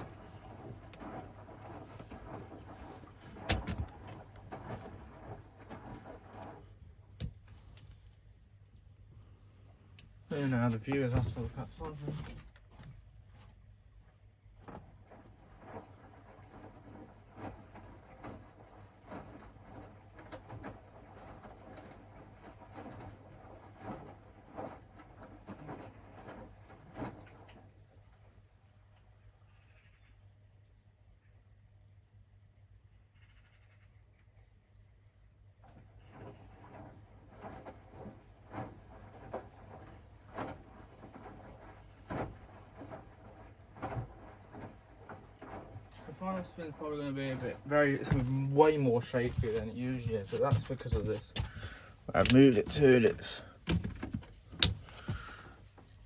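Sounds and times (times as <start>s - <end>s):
washing machine drum tumbling: 0.0s - 7.8s, 35.7s - 56.0s
water swishing: 0.0s - 7.8s, 35.7s - 53.7s.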